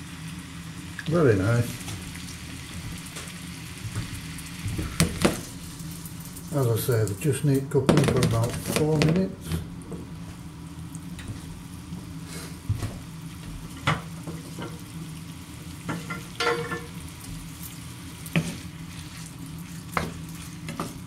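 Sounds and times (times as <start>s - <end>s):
scallops sizzling in oil: 0.0s - 7.2s, 10.4s - 21.0s
wooden spoon stirring: 18.3s - 21.0s.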